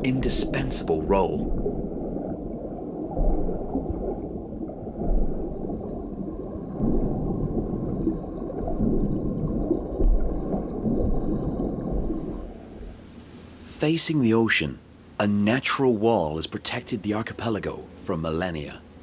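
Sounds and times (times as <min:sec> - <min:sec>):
muffled underwater water rush: 0:00.0 - 0:13.9.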